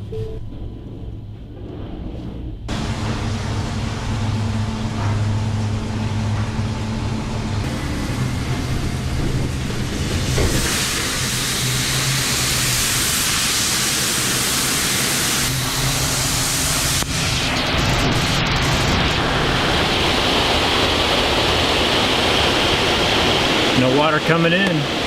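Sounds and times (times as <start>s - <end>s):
low hum: 0.0s - 23.9s
water jets hissing: 7.6s - 25.0s.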